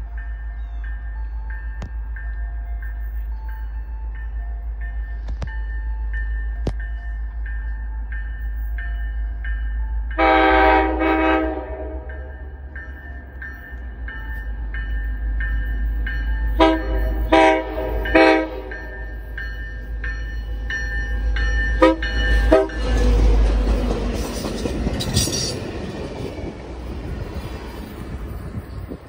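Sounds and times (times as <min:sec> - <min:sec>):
locomotive bell ringing: 0:00.0 - 0:29.0
train rumble and wheel noise: 0:00.0 - 0:29.0
train air horn blasts: 0:10.2 - 0:12.3, 0:16.6 - 0:19.0, 0:21.8 - 0:22.8.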